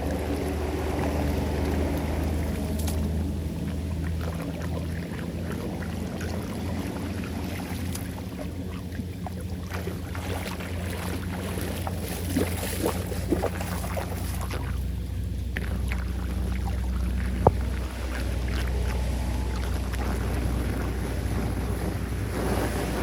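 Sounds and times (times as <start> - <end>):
floodwater rushing down a drain: 0.0 - 23.0
water splashes: 0.0 - 23.0
wind on microphone: 15.7 - 23.0.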